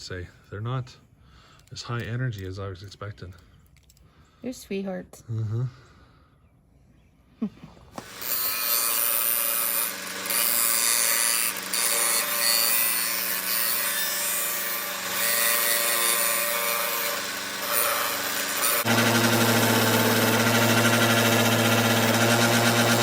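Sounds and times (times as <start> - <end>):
metal rasping grind: 8.0 - 23.0
power tool motor hum: 8.0 - 23.0.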